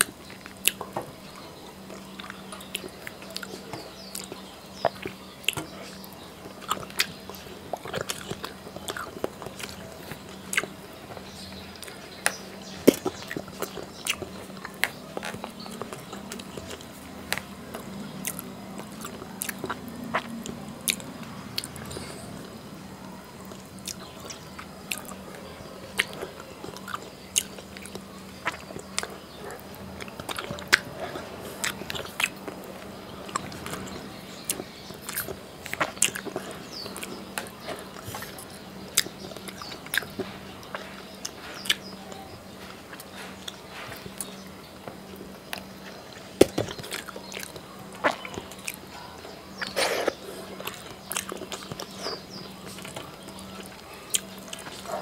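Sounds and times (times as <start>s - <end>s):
faint steady hum: 0.0s - 55.0s
man chewing food: 0.0s - 55.0s.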